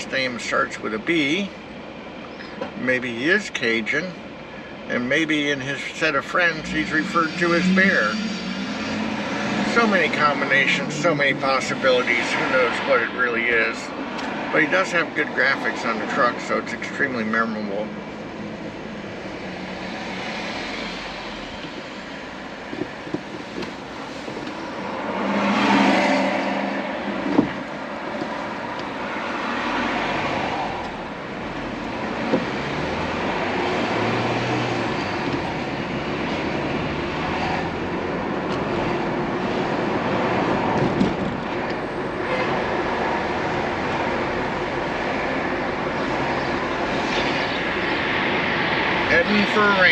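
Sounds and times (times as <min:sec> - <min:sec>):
car road and tyre noise: 0:00.0 - 0:49.9
vehicle passing: 0:06.6 - 0:14.8, 0:17.6 - 0:38.3.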